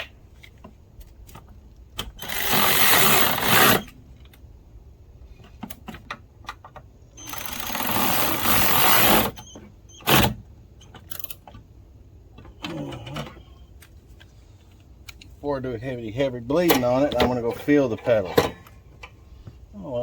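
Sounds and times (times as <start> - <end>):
power tool rattling: 2.2 - 3.9, 7.2 - 9.4.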